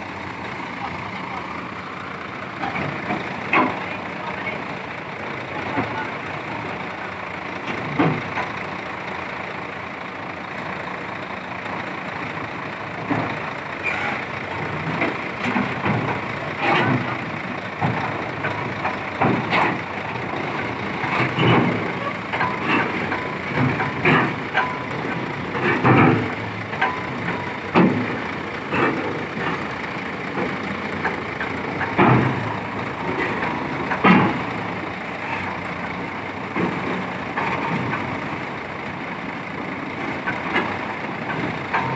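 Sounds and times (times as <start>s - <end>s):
piling rig engine running: 0.0s - 41.9s
metallic clanks and knocks: 2.6s - 4.5s, 14.7s - 35.6s.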